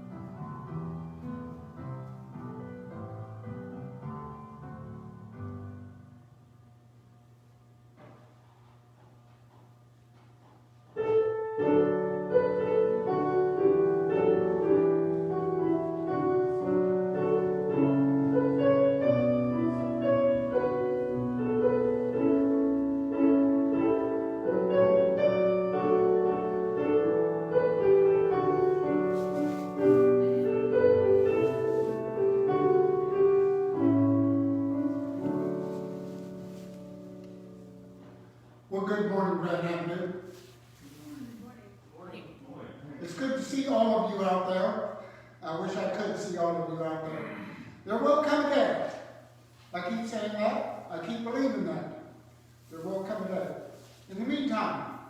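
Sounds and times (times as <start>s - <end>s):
slow solo piano: 0.0s - 6.0s, 11.0s - 38.4s.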